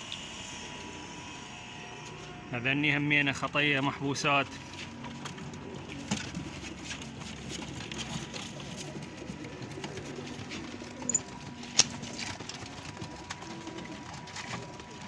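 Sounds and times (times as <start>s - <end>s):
pigeons cooing: 4.5s - 15.0s.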